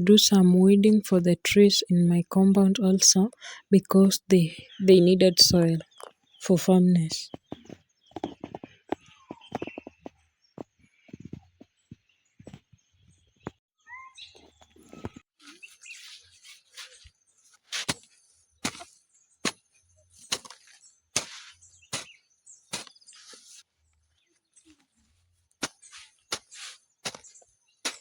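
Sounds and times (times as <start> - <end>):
hoe chopping into soil: 17.7 - 23.5, 25.6 - 28.0.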